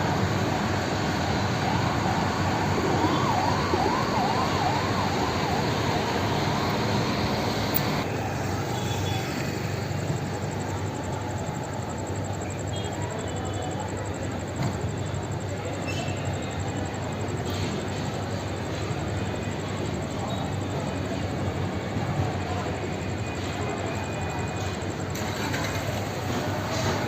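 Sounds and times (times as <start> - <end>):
road traffic noise: 0.0 - 27.0
siren yelping: 0.4 - 8.1.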